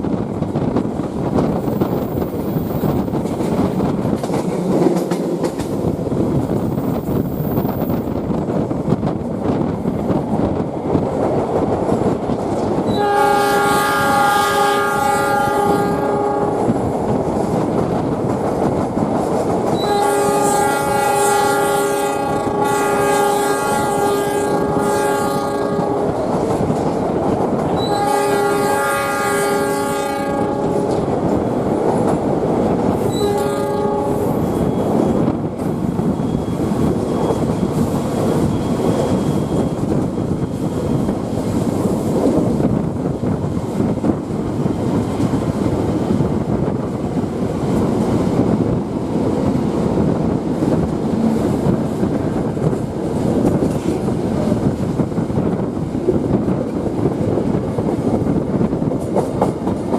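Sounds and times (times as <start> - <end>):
train running on rails: 0.0 - 59.9
train horn blasts: 12.9 - 16.8, 19.8 - 26.2, 27.8 - 31.1, 33.0 - 34.5.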